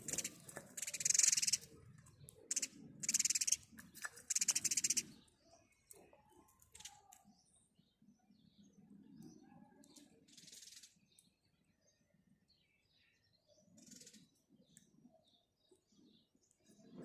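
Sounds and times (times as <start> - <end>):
sparrows chirping: 0.0 - 17.0.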